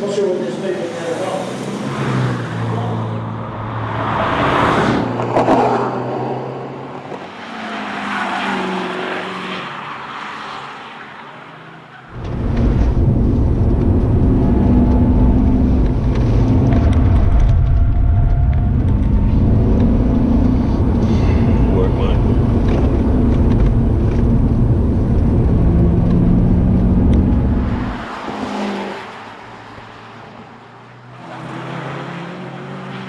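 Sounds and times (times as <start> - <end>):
cars passing by: 0.0 - 33.0
car engine droning at speed: 12.1 - 33.0.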